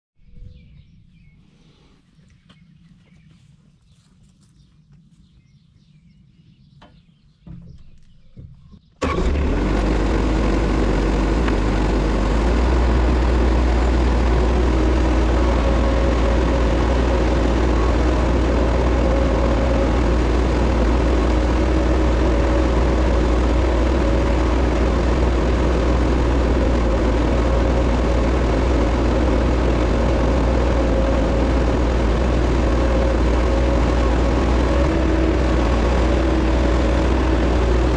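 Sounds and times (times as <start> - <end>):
diesel engine humming: 9.0 - 37.9.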